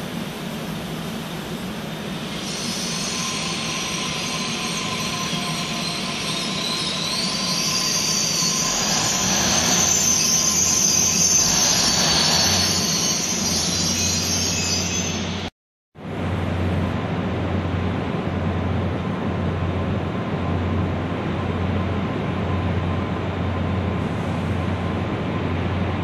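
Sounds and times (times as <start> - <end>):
train rumble: 0.0 - 26.0
train wheels squealing: 2.0 - 15.5.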